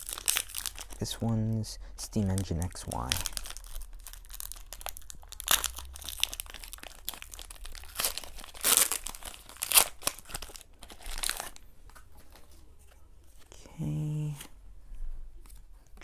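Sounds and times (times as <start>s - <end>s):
foil wrapper crinkling and tearing: 0.0s - 12.5s.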